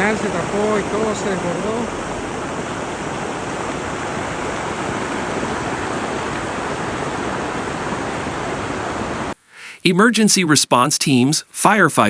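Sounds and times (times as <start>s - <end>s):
floodwater rushing: 0.0s - 9.4s.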